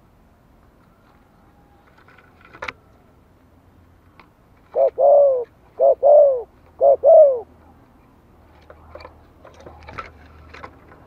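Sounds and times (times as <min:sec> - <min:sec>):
dove cooing: 0:04.6 - 0:07.6.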